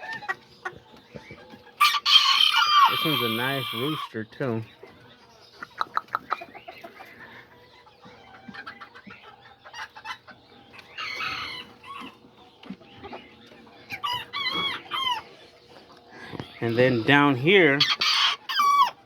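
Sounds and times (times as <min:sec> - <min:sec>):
chickens clucking: 0:00.0 - 0:19.0
rooster crowing: 0:01.8 - 0:04.0.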